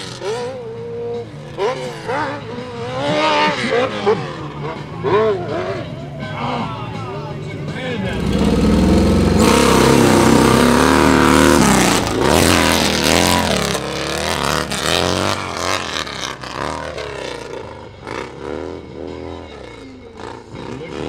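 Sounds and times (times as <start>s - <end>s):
motorcycle engine revving hard: 0.0s - 5.9s, 8.0s - 21.0s.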